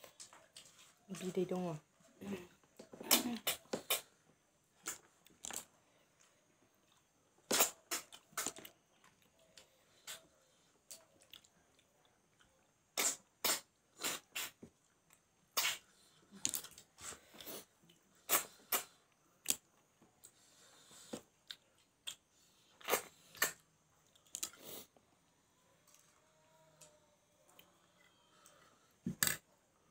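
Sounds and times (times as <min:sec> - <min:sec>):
chewing and mouth smacking: 0:06.8 - 0:12.7, 0:21.3 - 0:24.6.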